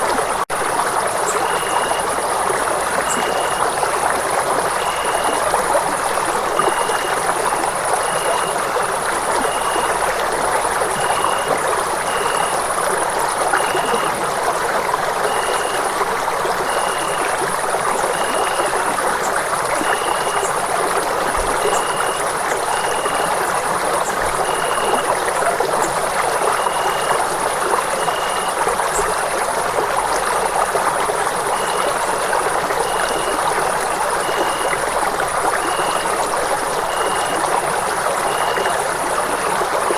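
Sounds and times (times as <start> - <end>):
water rushing: 0.0 - 39.9
faint high-pitched tone: 0.6 - 2.2, 2.9 - 3.7, 4.8 - 10.2, 10.9 - 12.9, 13.5 - 14.2, 18.1 - 19.0, 31.5 - 39.9.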